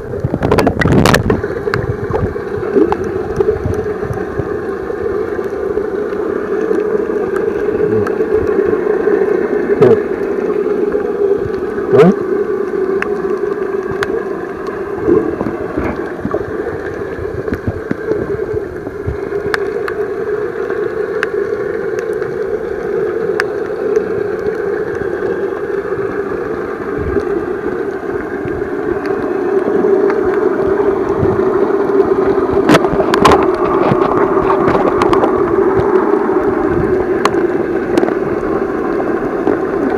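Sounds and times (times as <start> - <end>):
muffled underwater hum: 0.0 - 39.9
sharp clicks underwater: 0.0 - 39.9.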